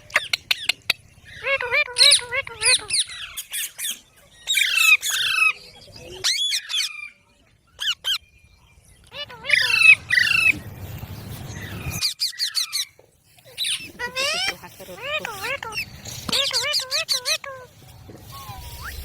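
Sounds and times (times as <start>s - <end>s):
parrot squawking: 1.3s - 3.9s, 4.5s - 5.6s, 9.1s - 10.6s, 11.7s - 19.0s.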